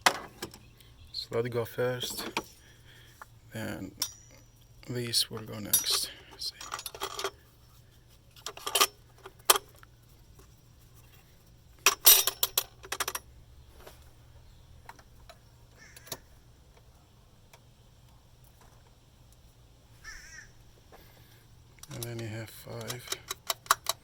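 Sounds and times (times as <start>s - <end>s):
metal hardware clinking and rattling: 1.9s - 2.8s, 3.6s - 7.5s, 8.3s - 14.0s, 21.7s - 24.0s.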